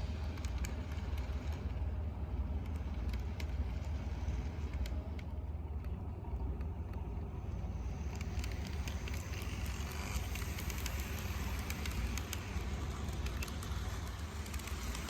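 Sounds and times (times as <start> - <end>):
wheels clicking on rails: 0.0 - 15.0
model train rumbling: 7.1 - 15.0.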